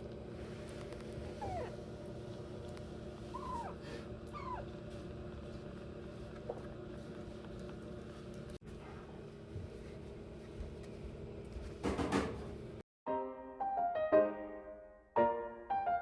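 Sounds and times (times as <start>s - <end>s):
kitten mewing: 1.2s - 1.8s, 3.3s - 4.7s.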